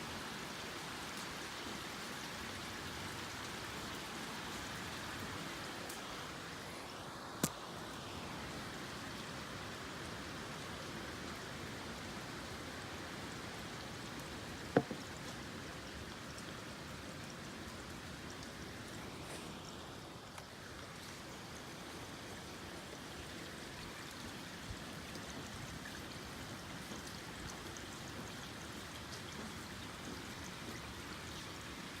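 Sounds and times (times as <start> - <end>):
rain: 0.0 - 32.0
wind: 0.0 - 32.0
sharp knocks: 14.8 - 15.0.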